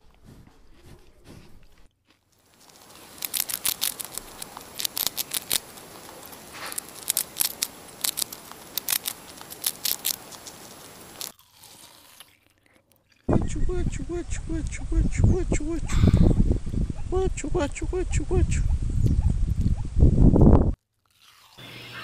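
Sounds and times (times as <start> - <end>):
squirrel gnawing and crunching: 0.0 - 14.7, 20.8 - 21.9.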